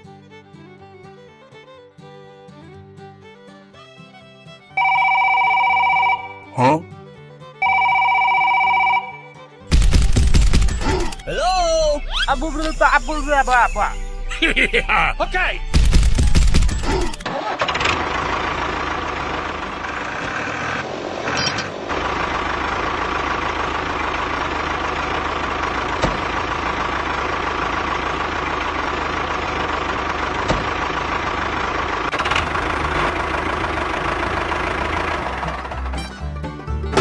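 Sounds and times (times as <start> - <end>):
tractor engine running: 9.7 - 37.0.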